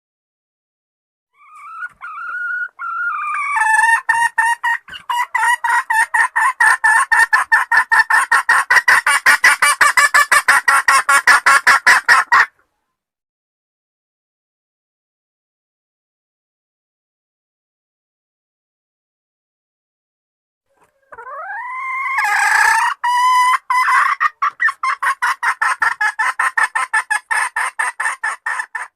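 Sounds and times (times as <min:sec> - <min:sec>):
junglefowl hen calling: 0:01.3 - 0:12.6, 0:20.7 - 0:28.9
rapid clucking: 0:03.2 - 0:12.5.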